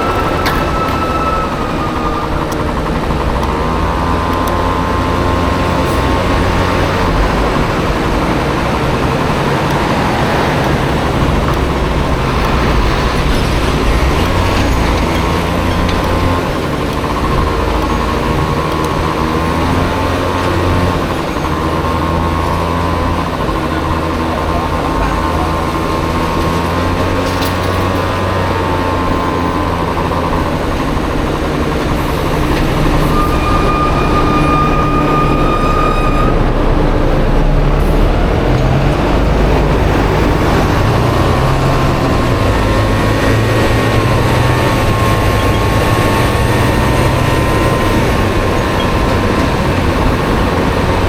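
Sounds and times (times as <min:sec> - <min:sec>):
low rumble: 0:00.0 - 0:19.7
scooter engine whine: 0:00.0 - 0:51.0.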